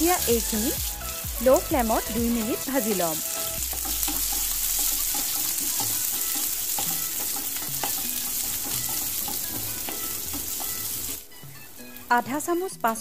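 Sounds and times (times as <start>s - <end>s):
onions sizzling in hot oil: 0.0s - 13.0s
spatula scraping a pan: 2.8s - 11.5s.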